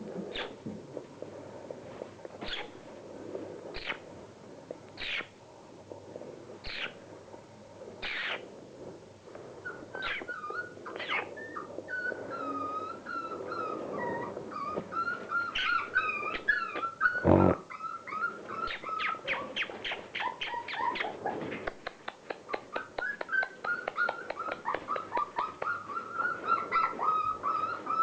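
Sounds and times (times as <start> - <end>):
puppies whining and whimpering: 9.6 - 21.8, 22.5 - 28.0
puppies yipping: 9.7 - 21.7, 22.4 - 28.0.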